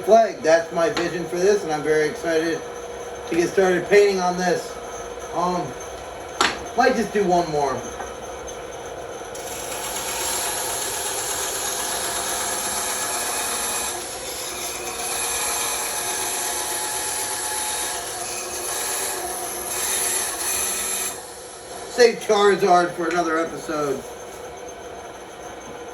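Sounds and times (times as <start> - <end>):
bandsaw cutting wood: 9.4 - 24.0.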